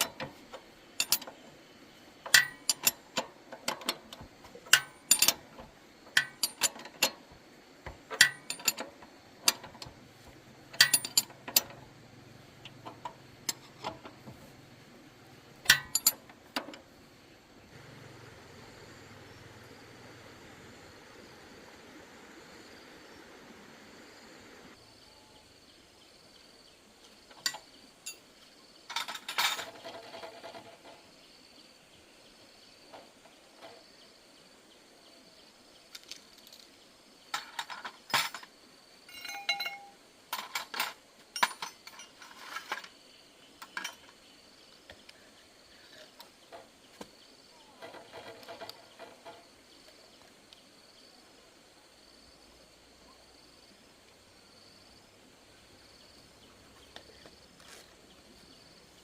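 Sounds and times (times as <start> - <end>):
metal tools clinking: 0.0 - 1.5, 2.2 - 11.9, 12.6 - 14.3, 15.6 - 16.8, 27.3 - 28.3, 28.9 - 31.0, 37.3 - 38.5, 39.1 - 43.0, 43.6 - 44.2
insects chirping: 0.0 - 59.0
low hiss: 0.0 - 59.0.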